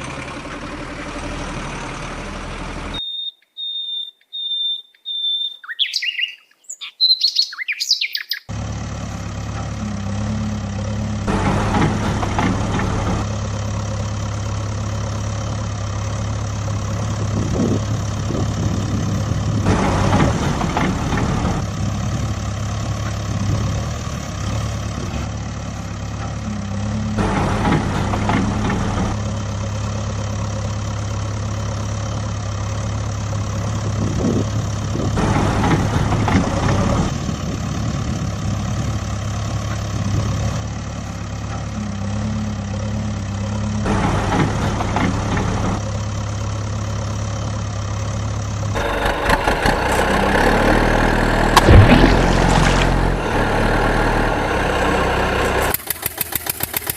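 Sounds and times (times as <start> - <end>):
engine idling: 0.0 - 3.0, 8.5 - 56.9
engine knock: 43.9 - 54.1, 55.3 - 56.9.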